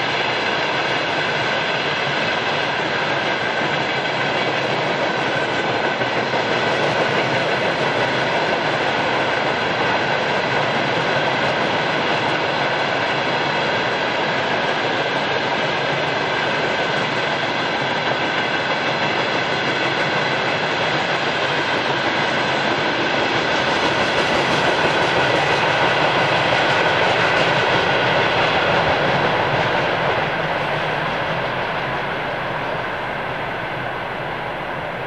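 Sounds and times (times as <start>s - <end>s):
clickety-clack of rails: 0.0s - 35.0s
freight train wheels rumbling: 0.0s - 35.0s.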